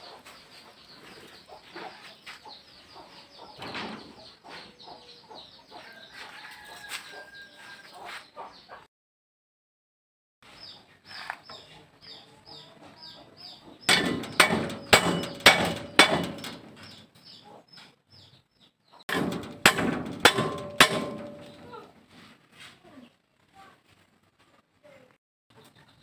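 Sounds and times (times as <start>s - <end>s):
sharp metallic knocks: 13.9s - 17.1s, 19.1s - 21.9s.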